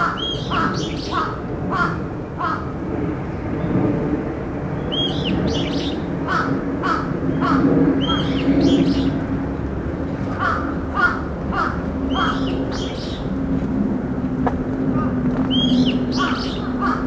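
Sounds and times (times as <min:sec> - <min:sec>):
harsh bird calls: 0:00.0 - 0:02.7, 0:04.8 - 0:09.2, 0:10.3 - 0:13.4, 0:15.0 - 0:17.0
higher arched bird calls: 0:00.0 - 0:02.7, 0:04.8 - 0:09.2, 0:10.4 - 0:13.4, 0:15.0 - 0:17.0.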